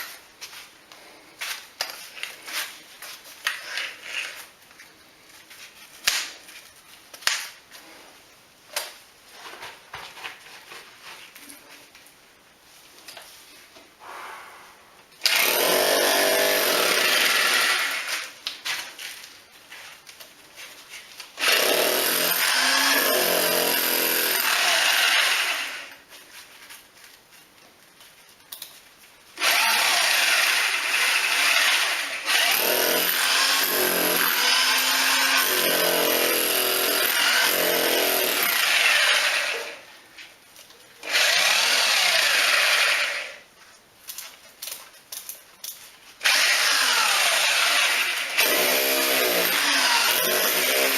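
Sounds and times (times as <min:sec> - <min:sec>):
electric drill boring through wall: 0:15.2 - 0:18.3, 0:21.4 - 0:26.0, 0:29.4 - 0:39.8, 0:41.0 - 0:43.4, 0:46.2 - 0:50.9.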